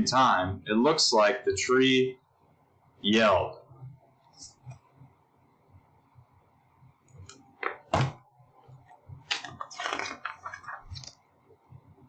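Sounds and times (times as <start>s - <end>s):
book page rustling: 9.3s - 11.2s.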